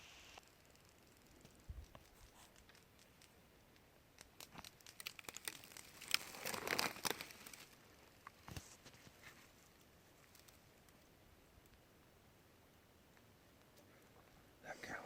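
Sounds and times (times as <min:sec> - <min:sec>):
rustling and crinkling: 0:00.0 - 0:11.8
crackles: 0:00.0 - 0:12.4.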